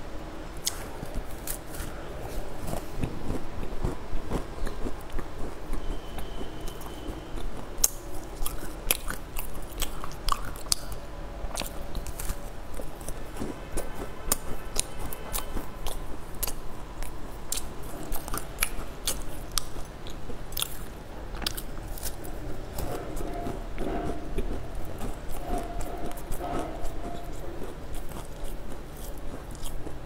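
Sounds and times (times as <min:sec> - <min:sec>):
crunchy pastry chewing: 0:00.6 - 0:30.0.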